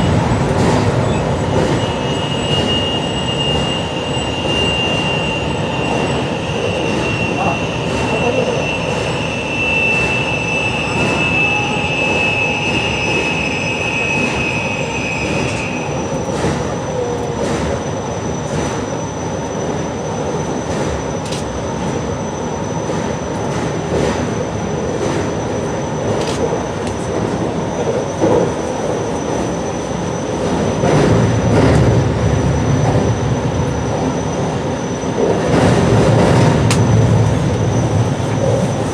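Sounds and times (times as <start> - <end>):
train rumble from on board: 0.0 - 38.9.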